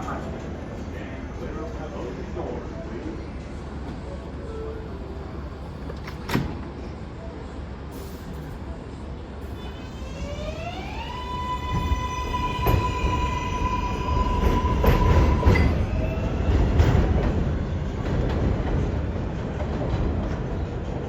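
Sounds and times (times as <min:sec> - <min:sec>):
train rumble: 0:00.0 - 0:21.0
electric train whine: 0:09.4 - 0:17.2.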